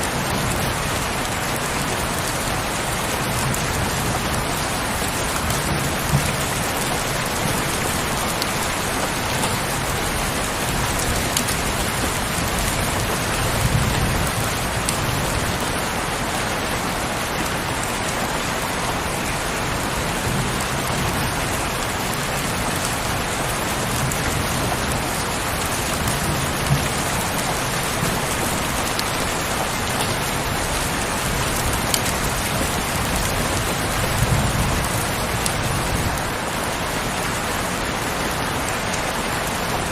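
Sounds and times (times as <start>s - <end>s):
raindrop ticks: 0.0s - 15.8s, 20.2s - 36.3s
heavy rain on a window: 0.0s - 39.9s.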